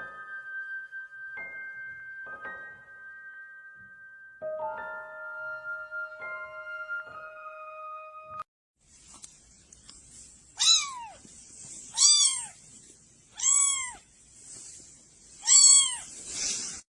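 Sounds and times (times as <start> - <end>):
faint steady hiss: 8.8 - 16.8
cat meowing: 10.6 - 11.2, 11.9 - 12.6, 13.3 - 14.1, 15.4 - 16.2.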